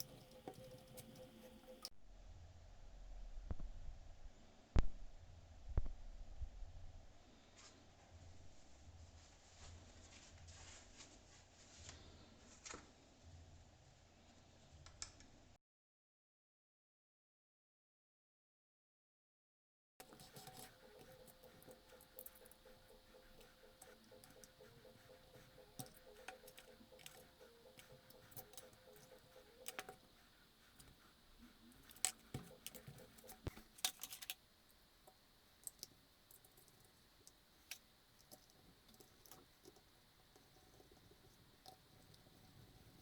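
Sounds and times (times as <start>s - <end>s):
faint steady hum: 0.0s - 8.9s, 20.0s - 43.0s.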